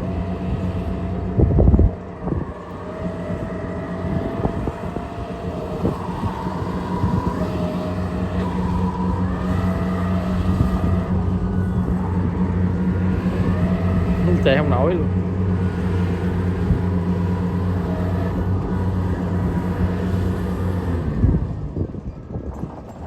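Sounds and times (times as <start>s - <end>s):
diesel engine running under load: 0.0s - 23.0s
wavering whine: 0.0s - 23.0s.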